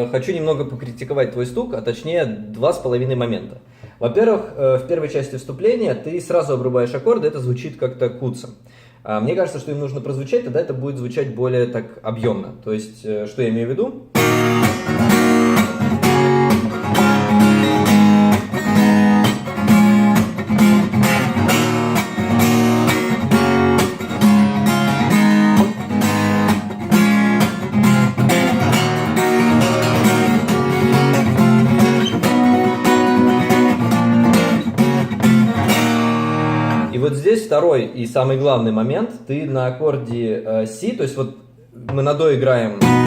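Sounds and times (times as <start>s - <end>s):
acoustic guitar strumming chords: 14.2s - 37.0s, 42.8s - 43.0s.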